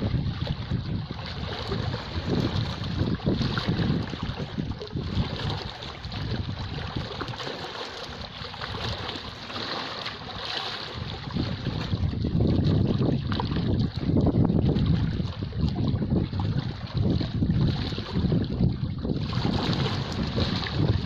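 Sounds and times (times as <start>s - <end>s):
sea waves washing: 0.0s - 21.0s
wind buffeting the microphone: 0.0s - 21.0s.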